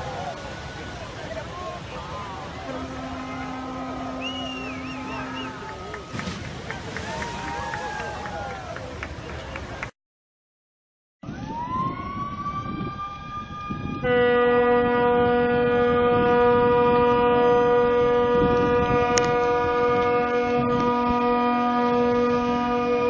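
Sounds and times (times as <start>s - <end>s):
deep ship horn chord: 2.6s - 5.7s, 14.0s - 23.0s.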